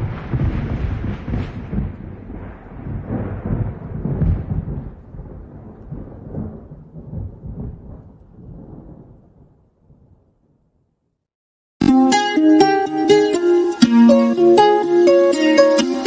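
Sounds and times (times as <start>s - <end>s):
thunder rumbling: 0.0s - 10.6s.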